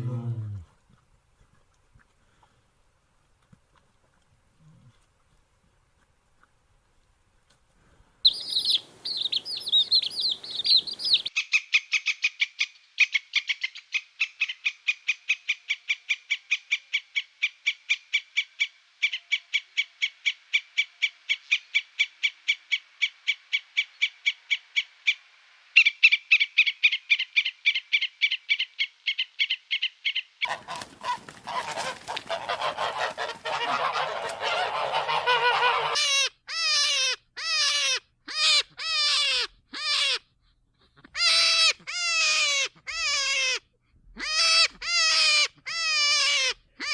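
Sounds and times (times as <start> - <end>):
high animal chirps: 8.3 - 11.4
rapid repeated animal calls: 8.3 - 25.2, 25.8 - 40.2
chorus of animal calls: 30.4 - 40.2.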